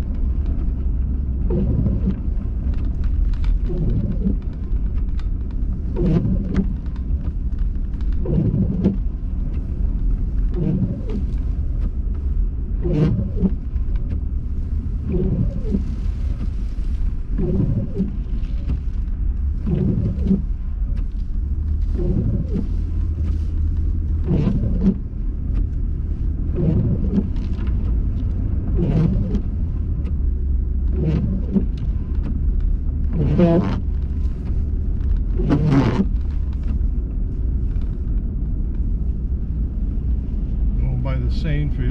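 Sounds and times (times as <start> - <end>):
car engine and road rumble: 0.0 - 41.9
windshield wipers squeaking: 0.2 - 38.4.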